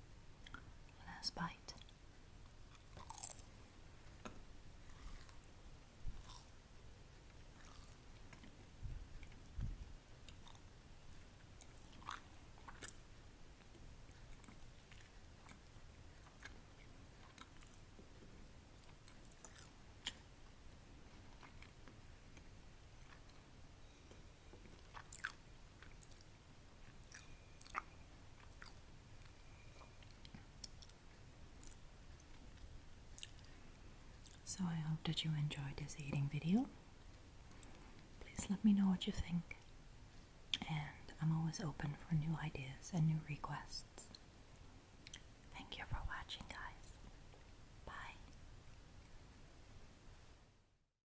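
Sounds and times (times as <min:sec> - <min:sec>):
chewing crispy food: 0:01.8 - 0:03.5, 0:06.2 - 0:06.6, 0:07.4 - 0:08.6, 0:10.3 - 0:10.7, 0:11.6 - 0:13.0, 0:13.6 - 0:20.2, 0:21.2 - 0:23.5, 0:24.1 - 0:33.5.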